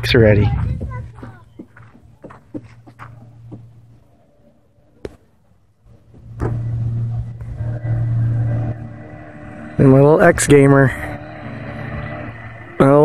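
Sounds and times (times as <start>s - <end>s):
dirt bike engine running: 6.2s - 13.0s.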